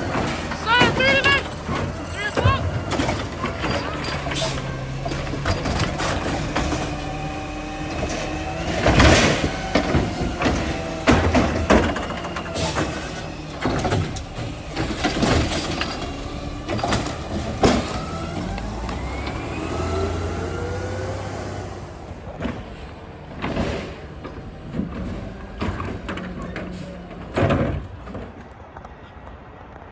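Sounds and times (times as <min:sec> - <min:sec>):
metal clanks and bangs: 0:00.0 - 0:19.6, 0:22.1 - 0:28.5
rising hydraulic whines: 0:00.0 - 0:23.3
garbage truck engine running: 0:00.0 - 0:28.6.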